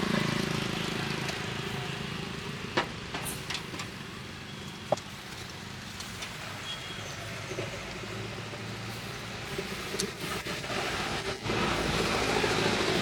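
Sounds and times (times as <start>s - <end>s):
street background hum: 0.0s - 13.0s.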